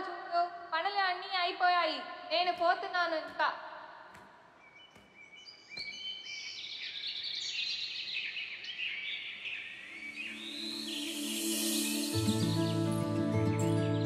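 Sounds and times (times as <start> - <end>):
small birds chirping: 3.4 - 14.0.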